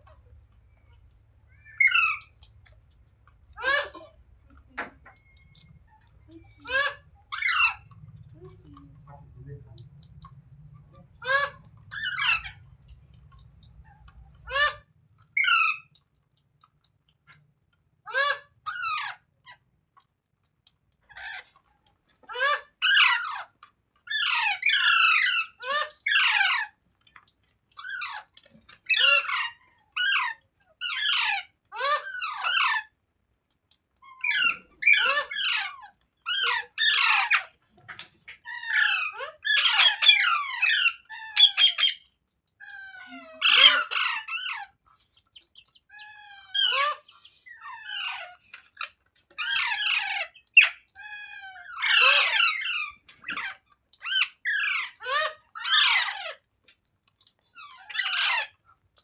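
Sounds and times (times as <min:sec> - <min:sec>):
parakeet calling: 0:38.4 - 0:42.0, 0:45.3 - 0:56.4.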